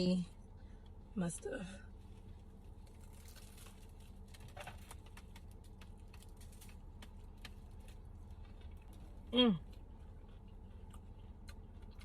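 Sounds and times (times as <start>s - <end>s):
car interior hum: 0.0s - 12.0s.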